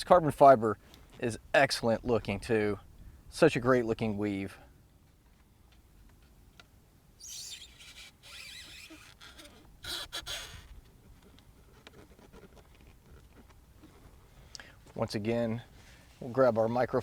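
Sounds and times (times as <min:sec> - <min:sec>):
rustling and scraping of trim piece: 0:07.2 - 0:14.4.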